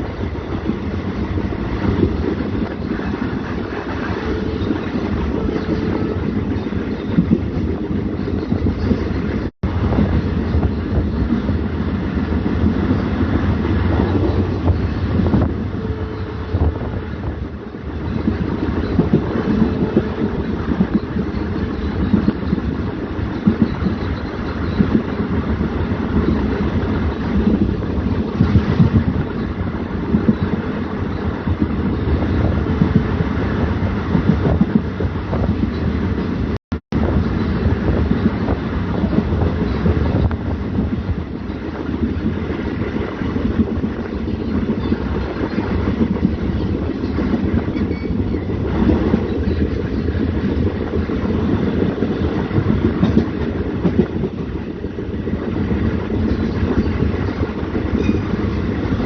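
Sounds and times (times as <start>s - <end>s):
diesel locomotive rumbling and rattling: 0.0s - 59.0s.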